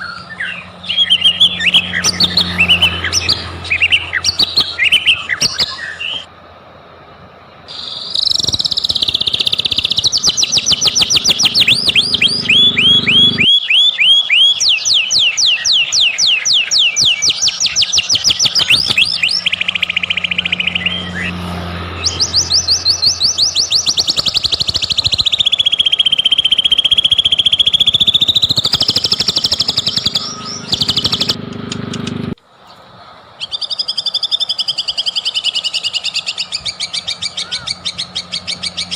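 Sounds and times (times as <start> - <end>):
bird singing rapid chirps: 0.0 - 6.3, 7.4 - 38.9
bird whistled phrase: 7.7 - 21.3.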